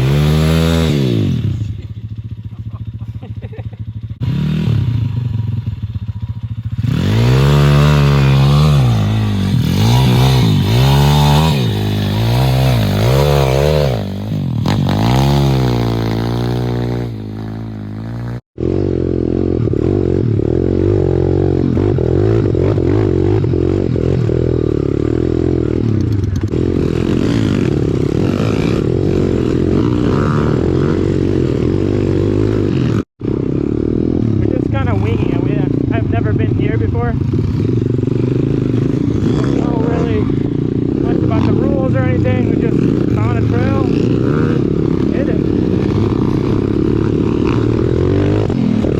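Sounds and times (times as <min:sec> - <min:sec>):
pit bike engines revving: 0:00.0 - 0:48.9.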